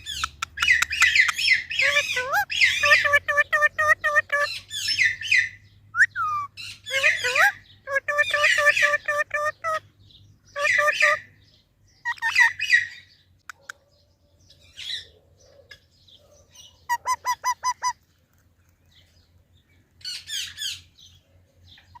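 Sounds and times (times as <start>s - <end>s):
parrot calling: 0.0s - 9.8s, 10.5s - 11.3s, 12.0s - 13.0s, 16.5s - 18.0s
parrot screeching: 0.7s - 5.5s.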